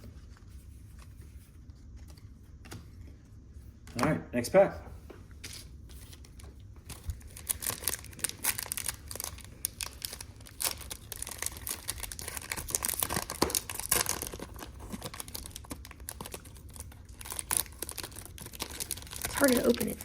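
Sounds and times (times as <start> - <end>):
foil wrapper crinkling and tearing: 5.6 - 20.0.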